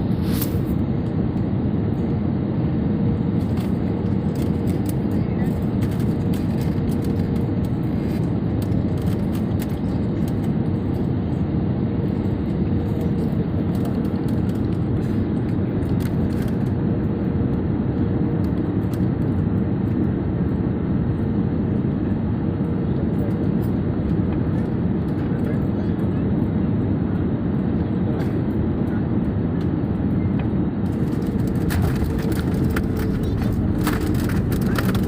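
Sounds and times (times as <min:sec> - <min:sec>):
airliner landing: 0:00.0 - 0:35.0.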